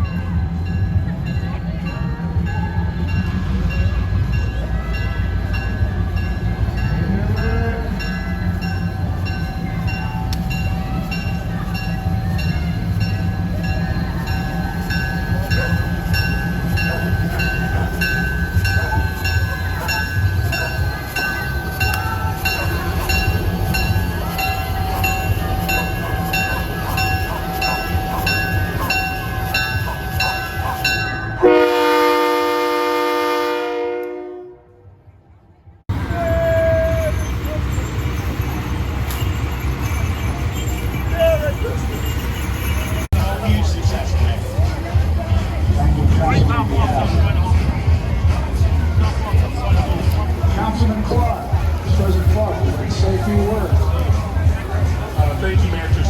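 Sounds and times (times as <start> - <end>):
locomotive bell ringing: 0.0 - 34.2, 35.9 - 47.5
train engine rumble: 0.0 - 56.0
train horn blast: 31.4 - 35.0.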